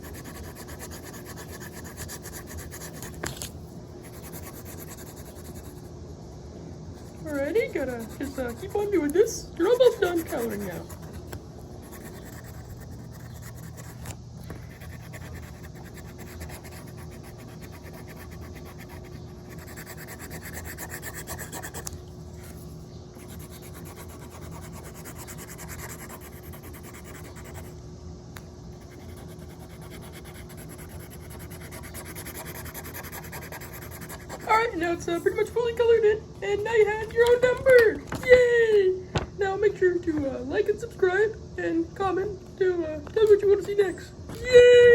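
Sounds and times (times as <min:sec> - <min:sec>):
marker scribbling on paper: 0:00.0 - 0:03.4, 0:07.0 - 0:22.0, 0:23.2 - 0:27.7, 0:28.8 - 0:35.5.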